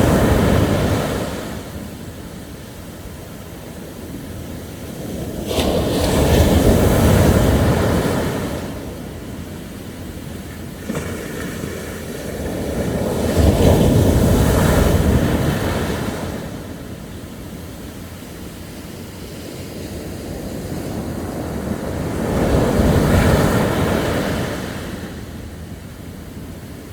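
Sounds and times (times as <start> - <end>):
sea waves breaking on shore: 0.0 - 26.9
surf rumble: 0.0 - 26.9.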